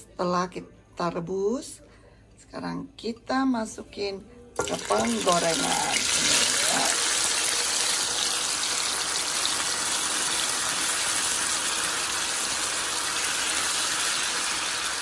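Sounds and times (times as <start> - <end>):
potatoes sizzling in oil: 4.6 - 15.0.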